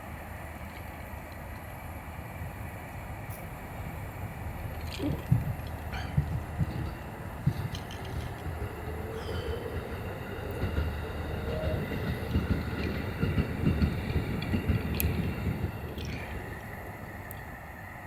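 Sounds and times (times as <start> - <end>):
train rumbling past: 0.0 - 18.0
wheels knocking: 5.1 - 17.1.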